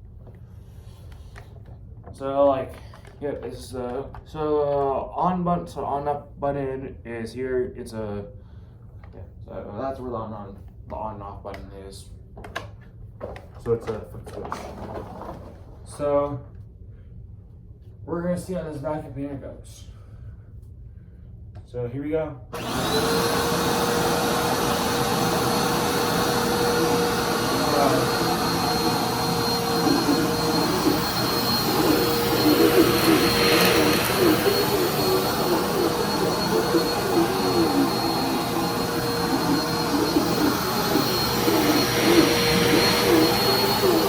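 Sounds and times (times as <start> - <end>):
vacuum cleaner running: 22.5 - 44.0.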